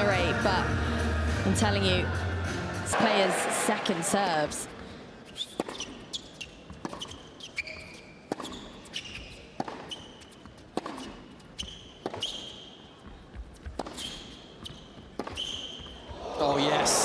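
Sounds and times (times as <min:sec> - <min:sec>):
shoes squeaking on court: 0:05.2 - 0:16.2
tennis ball hits and bounces: 0:05.5 - 0:06.0, 0:06.7 - 0:12.4, 0:13.6 - 0:16.0.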